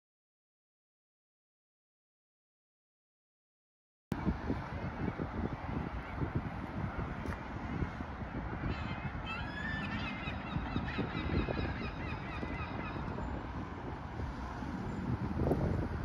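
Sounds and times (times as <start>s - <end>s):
wind rumbling on microphone: 4.1s - 16.0s
birds calling: 7.6s - 13.5s.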